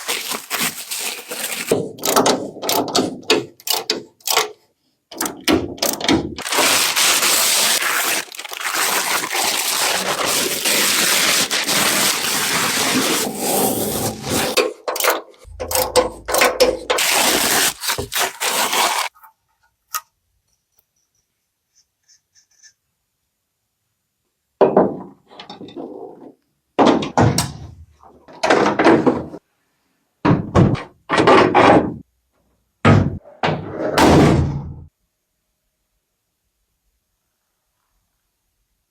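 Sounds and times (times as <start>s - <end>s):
knocking and scraping: 9.0s - 14.8s, 15.4s - 19.1s.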